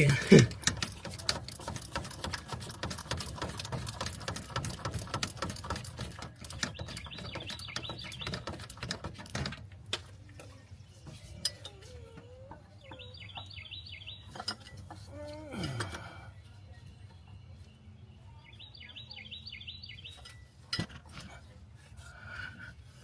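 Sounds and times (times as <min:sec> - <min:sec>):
fast dense clicking and rattling: 0:00.4 - 0:09.6
bird chirps: 0:06.4 - 0:08.7, 0:12.8 - 0:14.6, 0:16.3 - 0:20.6.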